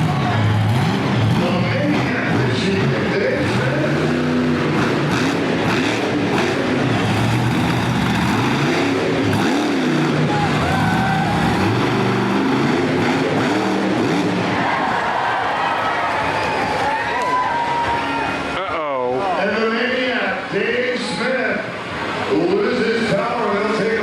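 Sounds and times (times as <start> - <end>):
truck engine revving: 0.0 - 15.2.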